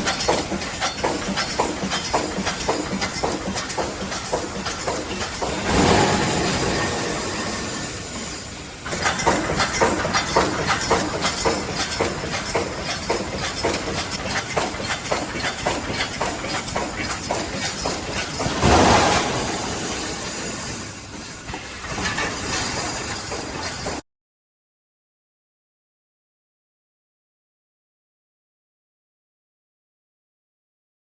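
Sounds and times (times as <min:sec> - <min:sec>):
welding machine clacking: 0:00.0 - 0:24.0
loud air hiss: 0:05.5 - 0:08.8, 0:18.5 - 0:21.5.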